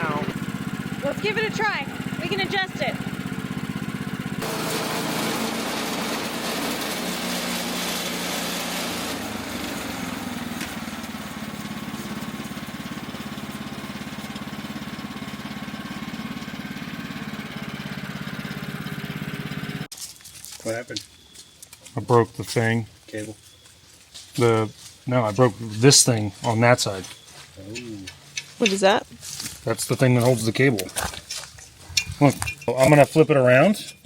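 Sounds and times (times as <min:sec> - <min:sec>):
sawmill gas engine running: 0:00.0 - 0:19.9.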